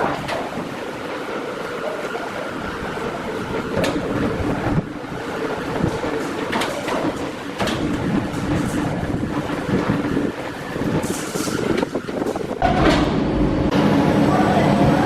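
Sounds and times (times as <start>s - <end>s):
knocks and clatter: 0.0s - 1.0s, 3.0s - 13.5s
woodworking machinery hum: 0.0s - 15.0s.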